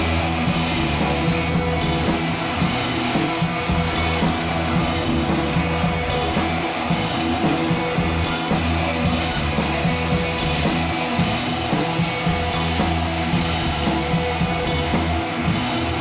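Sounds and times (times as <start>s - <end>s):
music with drums and guitar: 0.0s - 16.0s.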